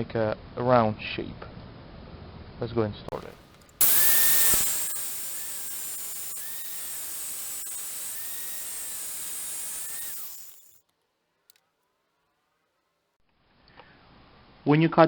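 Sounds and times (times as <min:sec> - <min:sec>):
cut-off wheel cutting metal: 0:03.1 - 0:10.8.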